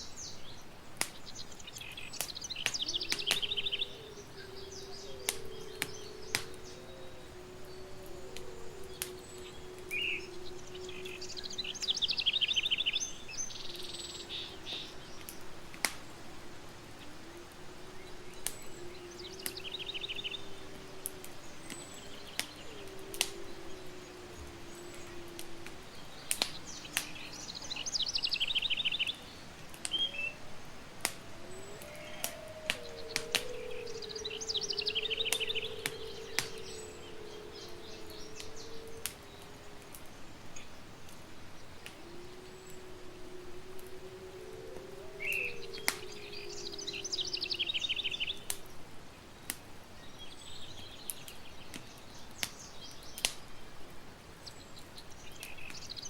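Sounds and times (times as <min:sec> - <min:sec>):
campfire crackling and popping: 0:00.0 - 0:56.0
bird singing a high trill: 0:01.2 - 0:15.2, 0:17.9 - 0:29.3, 0:31.2 - 0:40.8, 0:42.0 - 0:48.5.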